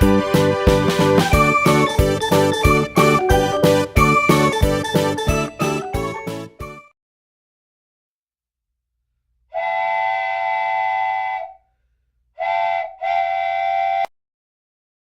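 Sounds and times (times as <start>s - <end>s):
steam locomotive chime whistle: 9.6s - 11.6s, 12.4s - 14.1s.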